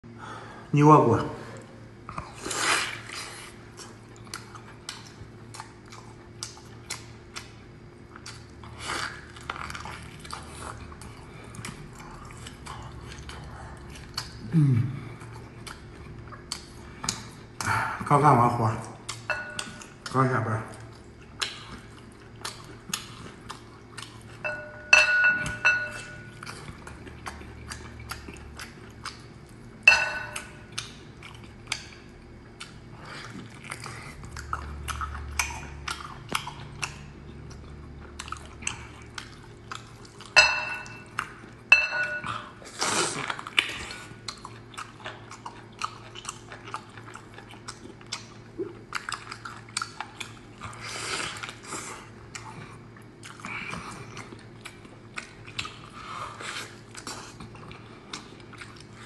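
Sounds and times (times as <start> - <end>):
wet chewing and biting: 2.0 - 14.5, 15.2 - 17.8, 18.7 - 59.0
slurps: 2.1 - 3.9, 42.3 - 44.2.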